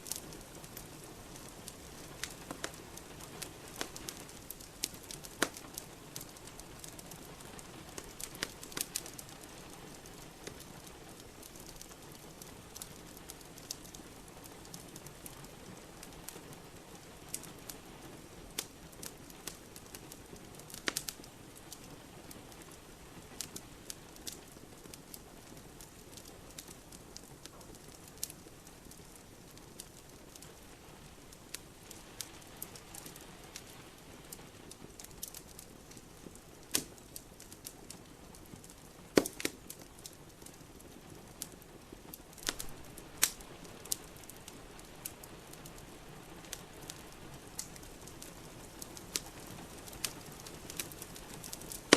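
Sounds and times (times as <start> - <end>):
soft steady hiss: 0.0 - 51.9
wood fire crackling and popping: 0.0 - 51.9.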